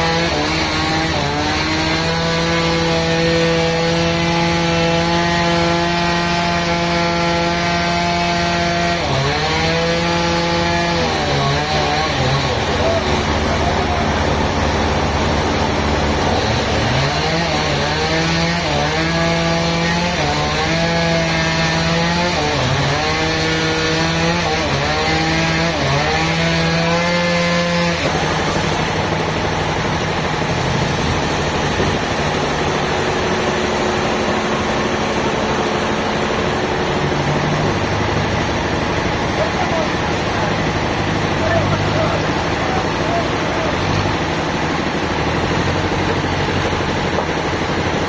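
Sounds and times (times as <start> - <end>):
engine saw cutting timber: 0.0 - 48.0.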